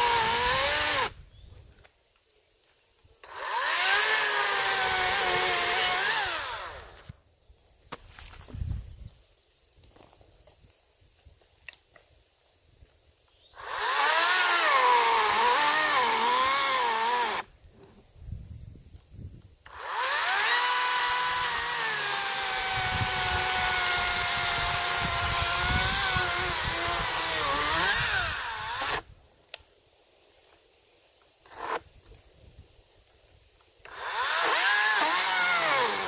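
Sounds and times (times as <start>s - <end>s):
electric chainsaw cutting logs: 0.0s - 1.2s, 3.2s - 7.2s, 13.6s - 17.6s, 19.6s - 29.1s, 31.5s - 31.9s, 33.8s - 36.0s.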